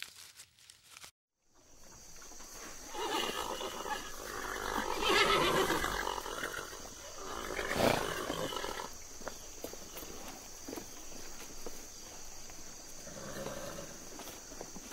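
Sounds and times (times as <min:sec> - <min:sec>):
large animal harsh cries: 0:02.9 - 0:08.9.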